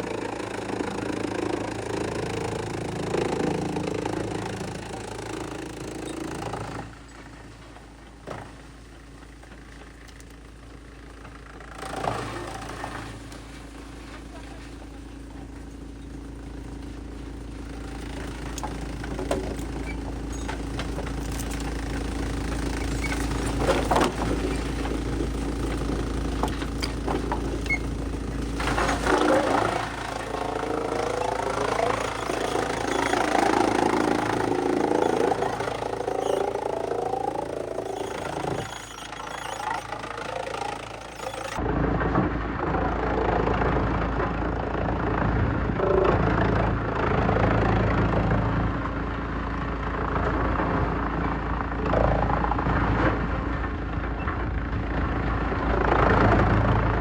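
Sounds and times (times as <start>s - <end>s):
wavering grinding of wood: 0.0s - 41.6s
wood shredder droning: 0.0s - 57.0s
knocks and clatter: 11.1s - 42.4s.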